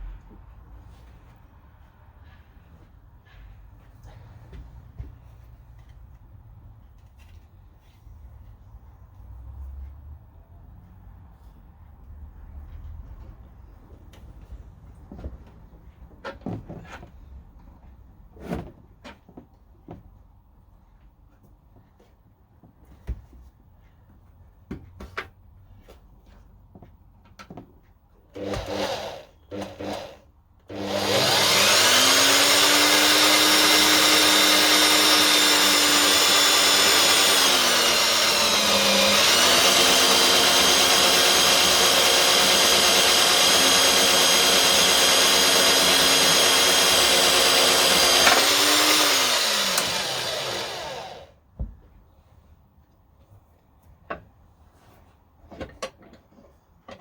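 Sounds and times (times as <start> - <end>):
electric motor whining: 28.4 - 51.3.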